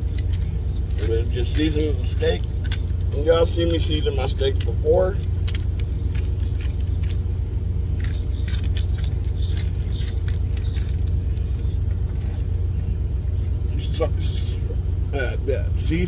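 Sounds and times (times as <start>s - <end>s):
truck engine idling: 0.0s - 16.0s
seasoning shaker rattling: 5.2s - 7.3s, 7.9s - 12.4s.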